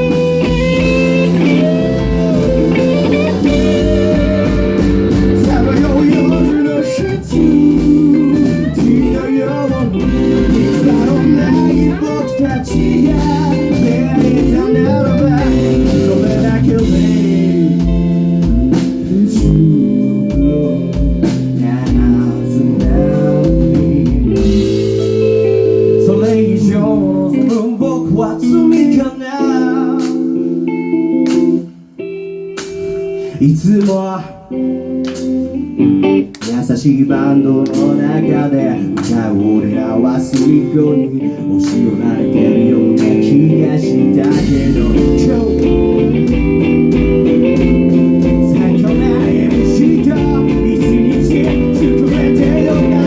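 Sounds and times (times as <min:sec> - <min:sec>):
steady drum beat: 0:00.0 - 0:27.8, 0:31.3 - 0:31.8, 0:42.8 - 0:53.0
lead guitar bending notes: 0:00.0 - 0:33.4, 0:34.4 - 0:36.5, 0:37.2 - 0:53.0.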